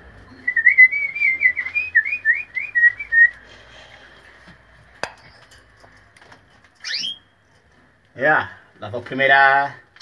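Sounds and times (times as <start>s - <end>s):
cage bird whistling song: 0.3s - 3.4s, 6.8s - 7.3s.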